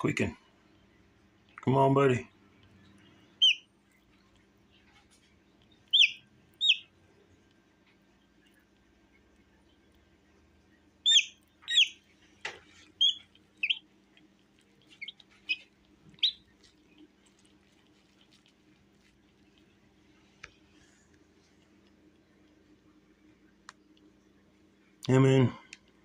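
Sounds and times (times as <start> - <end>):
chick peeping: 3.4 - 3.7, 5.6 - 6.9, 11.0 - 12.1, 12.9 - 13.9, 14.8 - 17.1.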